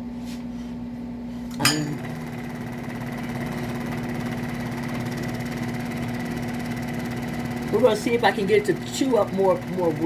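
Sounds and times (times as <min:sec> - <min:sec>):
scroll saw running: 0:02.0 - 0:10.0.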